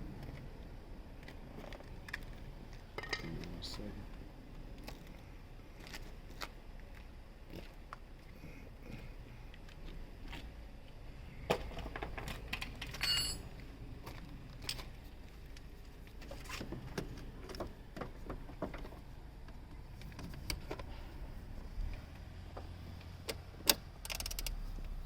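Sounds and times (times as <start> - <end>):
metal tools clinking on metal: 3.0 - 3.5, 12.6 - 13.6.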